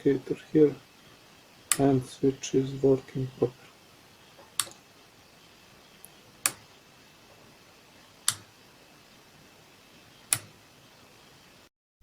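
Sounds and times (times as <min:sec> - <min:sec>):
rocker switch clicking: 0:04.6 - 0:04.8, 0:08.3 - 0:08.5, 0:10.3 - 0:10.5.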